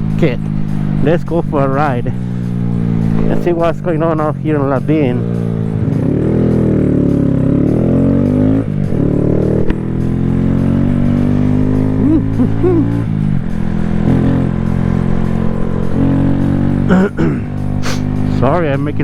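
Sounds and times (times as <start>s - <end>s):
rider vocal noises: 16.8s - 18.6s.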